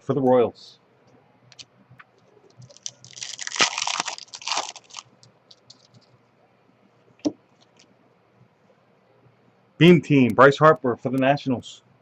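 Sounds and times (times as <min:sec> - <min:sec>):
card wrapping crinkling: 0:02.4 - 0:06.2.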